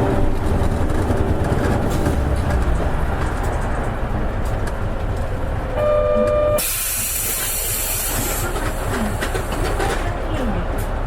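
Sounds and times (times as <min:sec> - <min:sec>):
bus engine and road rumble: 0:00.0 - 0:11.0
compressed air hiss: 0:06.6 - 0:08.5.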